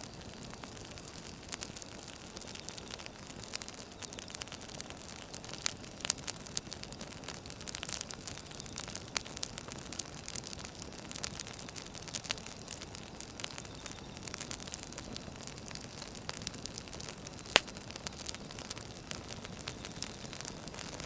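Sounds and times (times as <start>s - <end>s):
fire hissing: 0.0s - 21.0s
firewood crackling: 0.0s - 21.0s
sharp pop of burning wood: 15.8s - 21.0s.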